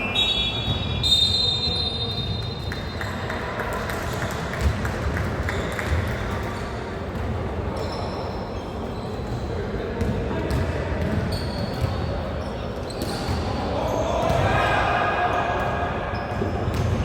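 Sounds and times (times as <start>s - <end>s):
hum of voices in hall: 0.0s - 17.0s
sneakers squeaking on court: 4.2s - 14.4s
basketball bouncing: 4.5s - 6.2s, 10.0s - 12.0s.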